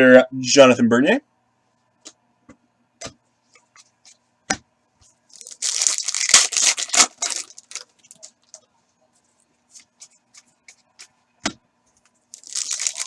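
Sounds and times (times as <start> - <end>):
foil wrapper tearing: 5.3 - 8.3, 12.4 - 13.0.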